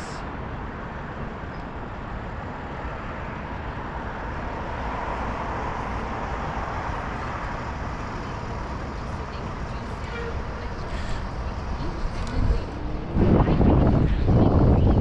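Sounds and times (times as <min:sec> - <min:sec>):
road traffic noise: 0:00.0 - 0:15.0
wind rushing: 0:11.2 - 0:15.0.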